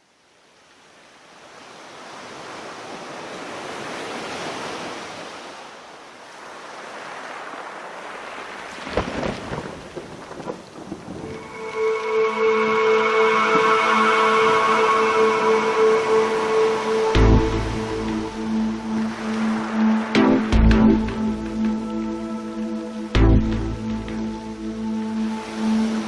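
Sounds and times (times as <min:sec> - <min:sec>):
steady rain: 0:00.0 - 0:26.0
sustained music tones: 0:11.2 - 0:26.0.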